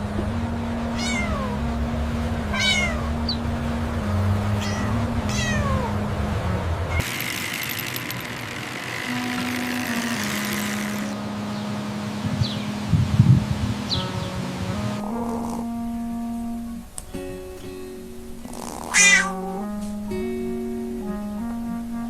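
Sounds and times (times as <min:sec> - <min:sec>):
low droning notes: 0:00.0 - 0:07.0, 0:08.4 - 0:18.5
cat meowing: 0:01.0 - 0:01.6, 0:02.5 - 0:03.2, 0:04.6 - 0:06.0, 0:18.8 - 0:19.7.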